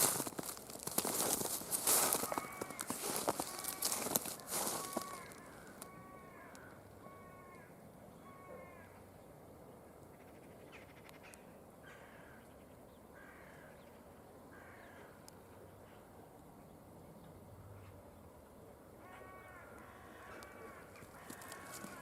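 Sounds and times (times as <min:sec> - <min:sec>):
distant harsh animal calls: 0:01.8 - 0:09.0.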